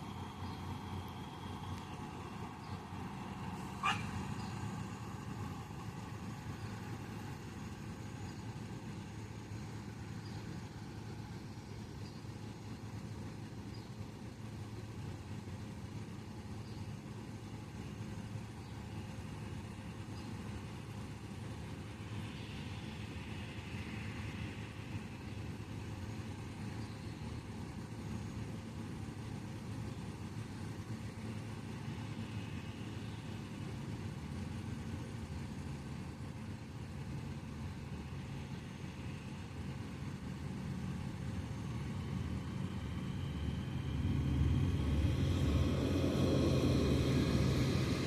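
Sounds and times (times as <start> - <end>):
harvest machinery engine rumble: 24.8 - 48.0.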